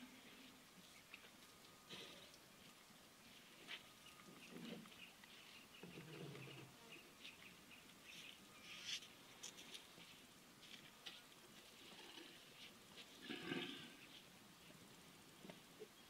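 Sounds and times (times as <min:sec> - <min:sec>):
faint bird calls: 0:03.9 - 0:09.1.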